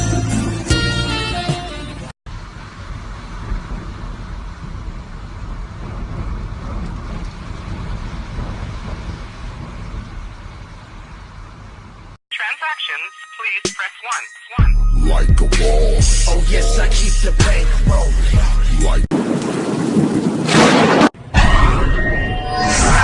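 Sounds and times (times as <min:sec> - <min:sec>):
music: 0:00.0 - 0:02.1, 0:12.3 - 0:19.1
steady rumbling noise with hiss: 0:02.3 - 0:12.2.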